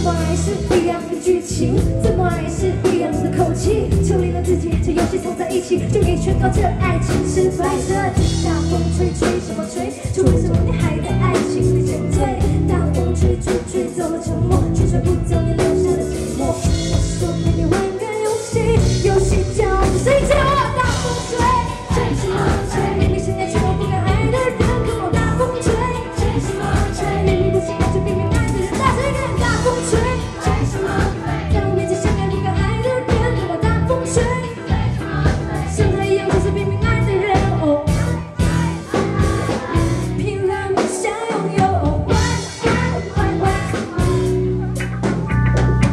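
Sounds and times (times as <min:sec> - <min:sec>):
person singing: 0:00.0 - 0:34.7
live pop-rock band: 0:00.0 - 0:45.9.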